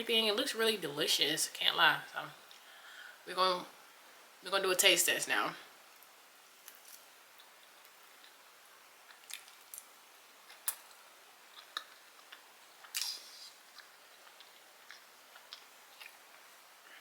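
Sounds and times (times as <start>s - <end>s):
chewing: 9.0s - 17.0s.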